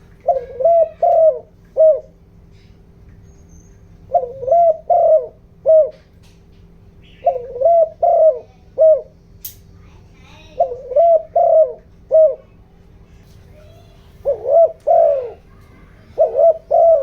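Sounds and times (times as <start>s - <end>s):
dove cooing: 0.0s - 2.2s, 4.0s - 6.1s, 7.0s - 9.2s, 10.3s - 12.6s, 13.6s - 17.0s.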